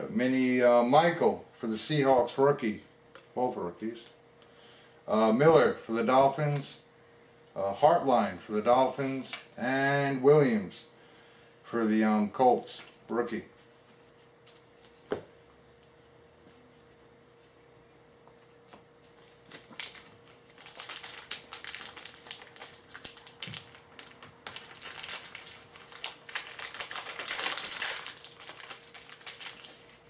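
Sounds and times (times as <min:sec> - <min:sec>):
wrapper crinkling and tearing: 0:19.4 - 0:30.0.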